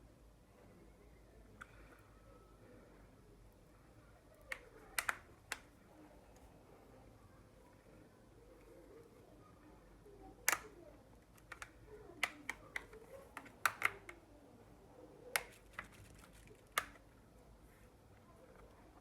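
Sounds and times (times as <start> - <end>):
small tools clicking on plastic: 4.3 - 5.8, 10.4 - 14.2, 15.3 - 17.1.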